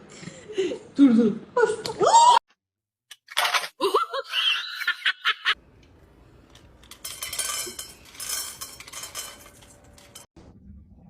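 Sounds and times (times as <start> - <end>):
small hard objects clinking: 6.5 - 10.3.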